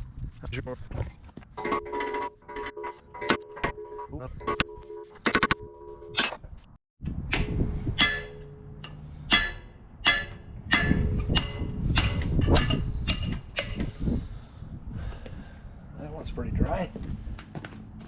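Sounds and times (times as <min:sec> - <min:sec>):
hammer striking steel pin: 0:07.3 - 0:13.8.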